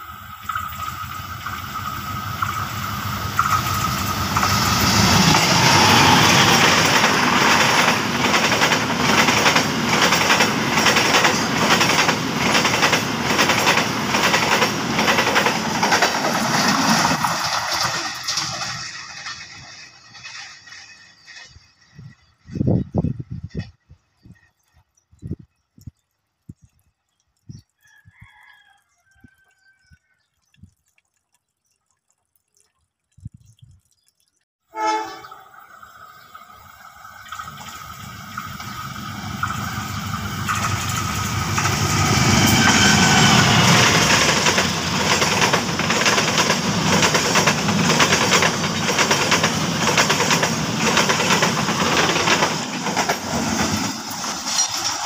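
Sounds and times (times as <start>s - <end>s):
train wheels clattering over rail joints: 6.4s - 21.5s, 40.4s - 55.0s
locomotive horn blast: 34.7s - 35.6s.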